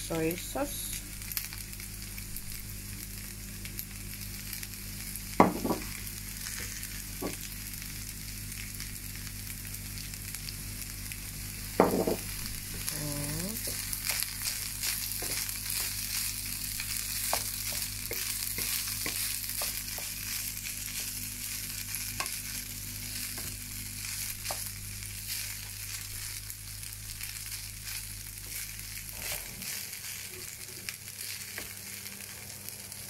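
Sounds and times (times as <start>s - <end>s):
rice sizzling in a pan: 0.0s - 33.0s
spatula scraping a pan: 29.1s - 30.5s.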